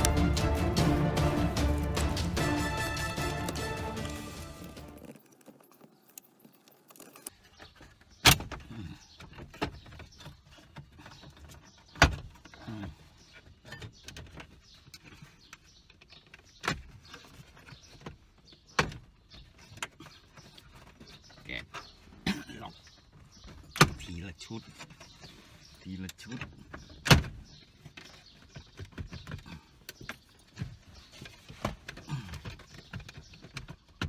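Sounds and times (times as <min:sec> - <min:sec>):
tools and car parts clicking: 0:04.8 - 0:12.6.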